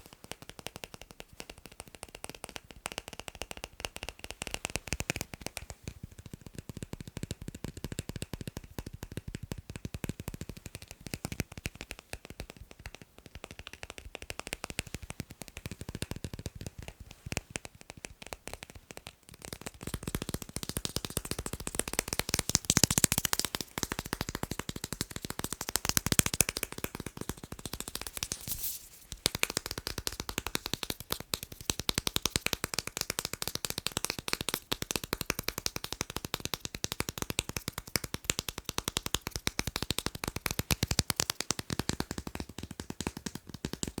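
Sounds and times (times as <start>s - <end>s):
fast tapping on magnets: 0.0s - 44.0s.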